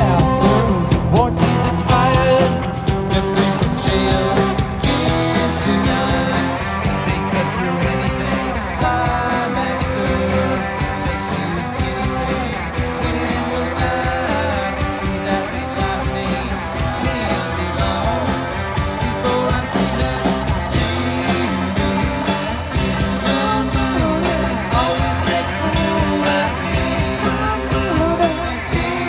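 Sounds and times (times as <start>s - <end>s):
electric guitar: 0.0s - 29.0s
live rock band playing: 0.0s - 29.0s.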